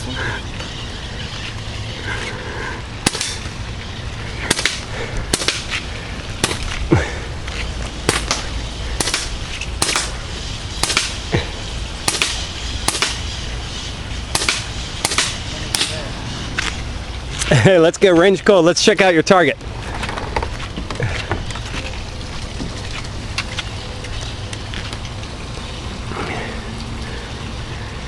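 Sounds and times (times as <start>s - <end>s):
air rifle shots: 3.0s - 3.5s, 4.4s - 5.8s, 6.4s - 6.8s, 8.0s - 11.4s, 12.0s - 16.1s.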